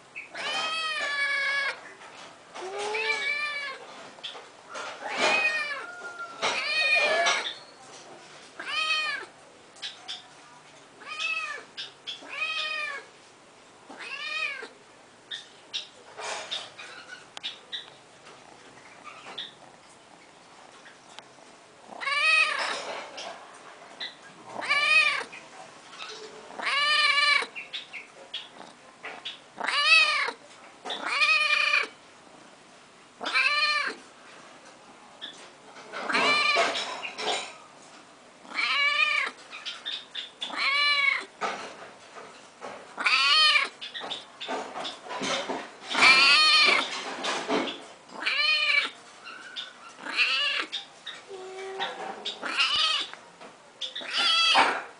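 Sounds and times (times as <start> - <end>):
cat meowing: 0.3 - 1.8, 2.6 - 3.8, 5.0 - 7.5, 8.6 - 9.3, 11.0 - 13.1, 13.9 - 14.8, 22.0 - 22.8, 24.6 - 25.3, 26.6 - 27.5, 29.6 - 30.4, 31.0 - 32.0, 33.2 - 34.0, 36.0 - 36.8, 38.5 - 39.4, 40.4 - 41.3, 43.0 - 43.8, 45.9 - 46.9, 48.2 - 49.0, 50.0 - 50.7, 51.3 - 53.2, 54.0 - 54.9.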